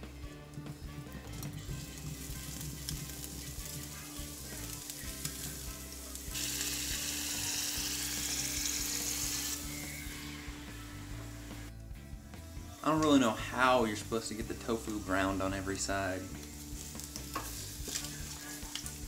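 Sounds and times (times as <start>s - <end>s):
tofu sizzling in hot oil: 1.4s - 11.7s, 16.2s - 19.0s.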